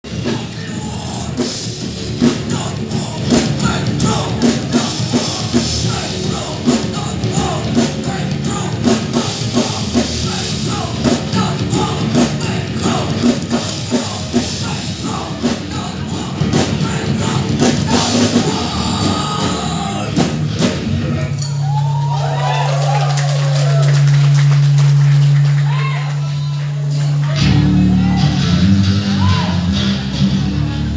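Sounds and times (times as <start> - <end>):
drum kit: 0.0 - 30.9
rock band playing live: 0.0 - 30.9
person singing: 0.1 - 20.5.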